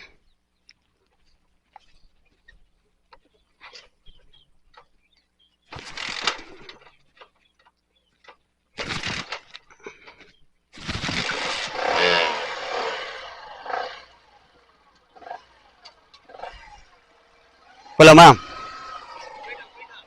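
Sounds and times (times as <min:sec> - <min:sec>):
motorcycle engine revving: 0:10.8 - 0:20.0.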